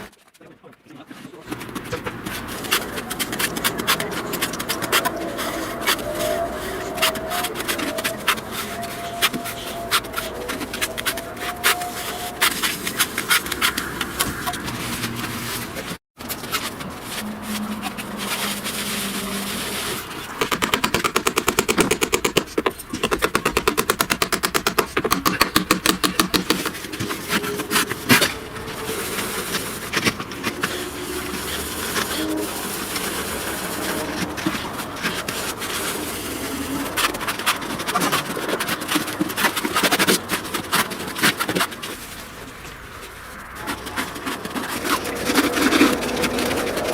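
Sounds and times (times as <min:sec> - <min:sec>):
rapid hammer blows: 0:20.3 - 0:30.8
tool knocks and clatter: 0:20.4 - 0:27.0.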